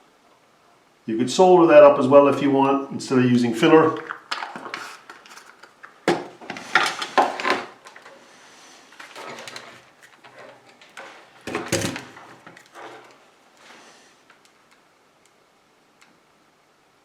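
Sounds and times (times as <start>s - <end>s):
tools knocking and clattering: 9.2s - 13.1s.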